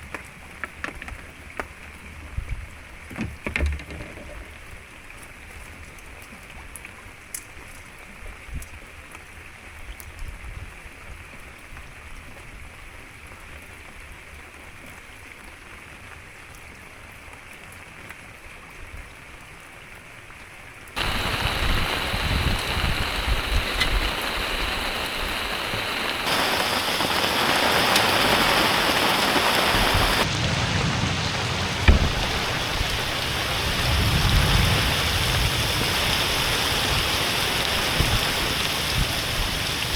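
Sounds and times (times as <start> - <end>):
rain pattering: 0.0 - 39.9
heavy rain pouring: 21.0 - 39.9.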